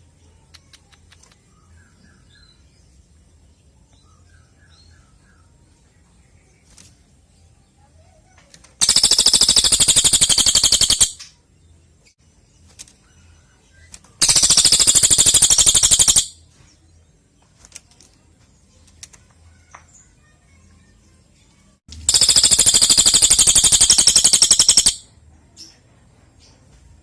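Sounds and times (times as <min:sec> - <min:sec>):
faint bird chirps: 0:00.0 - 0:27.0
bird rattling trill: 0:08.8 - 0:11.2, 0:14.2 - 0:16.4, 0:22.0 - 0:25.1.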